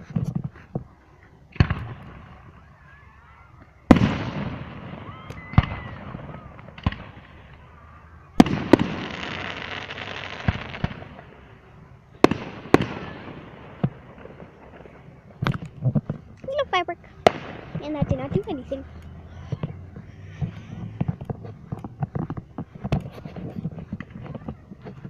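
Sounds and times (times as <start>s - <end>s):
fireworks bangs: 1.5s - 2.6s, 3.9s - 25.0s
fireworks crackling hiss: 8.4s - 18.8s.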